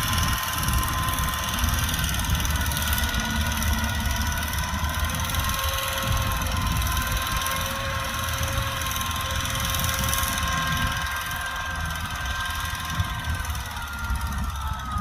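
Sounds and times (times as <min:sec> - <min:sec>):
thin steady whine: 0:00.0 - 0:15.0
tractor engine rumbling: 0:00.0 - 0:15.0.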